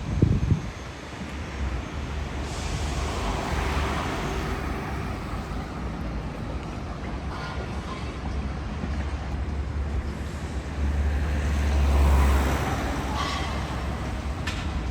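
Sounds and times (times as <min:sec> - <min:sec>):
road traffic rumble: 0:00.0 - 0:14.9.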